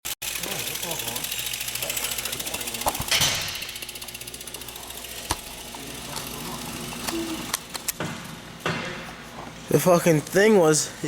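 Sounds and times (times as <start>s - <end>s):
bike hub ticking: 0.2s - 8.0s.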